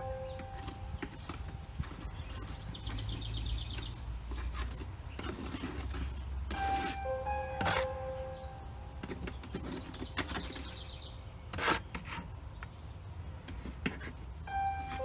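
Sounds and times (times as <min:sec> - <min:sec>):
small bird chirping trill: 0:00.0 - 0:05.7, 0:06.6 - 0:11.6.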